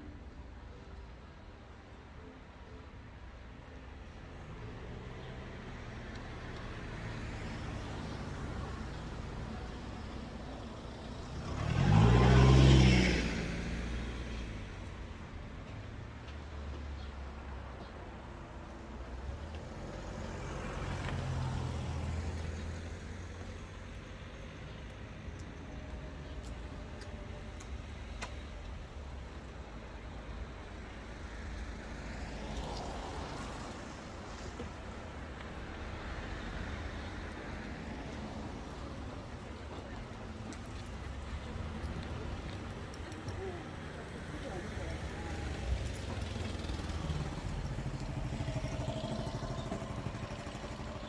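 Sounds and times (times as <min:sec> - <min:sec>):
road traffic rumble: 0:04.2 - 0:51.0
vehicle passing close by: 0:07.2 - 0:14.8, 0:43.5 - 0:51.0.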